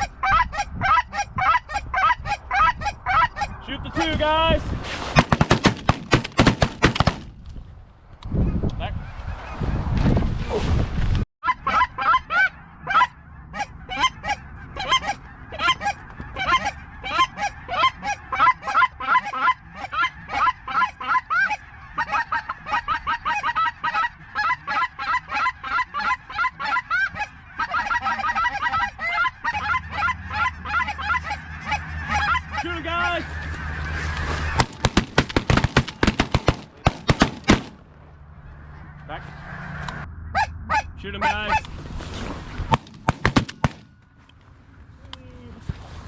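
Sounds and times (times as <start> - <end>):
goose honking: 11.4 - 37.8.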